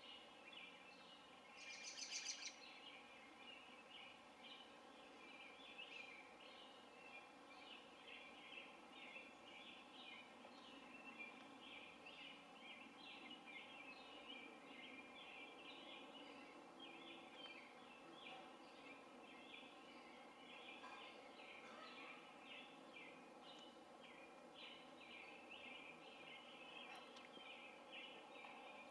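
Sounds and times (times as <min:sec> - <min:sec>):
faint high bird chirps: 0:01.6 - 0:02.8.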